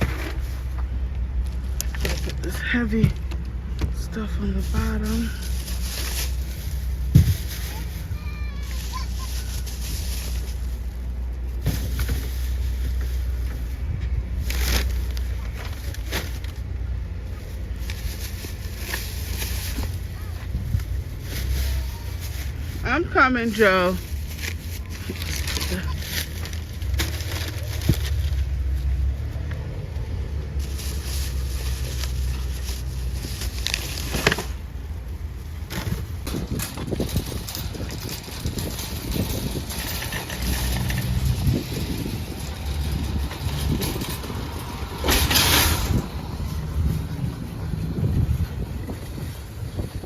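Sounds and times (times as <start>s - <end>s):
grocery bags rustling: 0.0s - 50.0s
low rumble: 24.0s - 50.0s.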